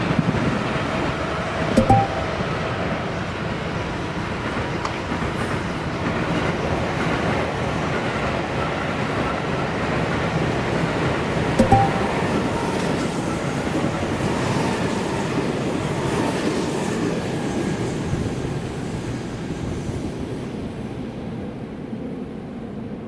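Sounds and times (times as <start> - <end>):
sharp knock: 1.8 - 2.5, 11.6 - 12.2.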